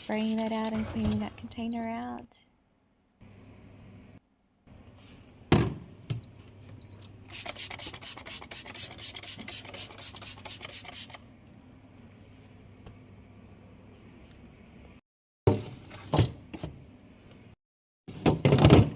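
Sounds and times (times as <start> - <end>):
scrubbing plastic container: 0.0 - 0.8.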